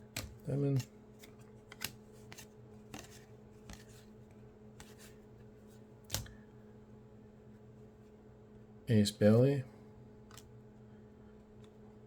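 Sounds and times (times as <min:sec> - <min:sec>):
card rustles and clicks: 0:00.1 - 0:04.2.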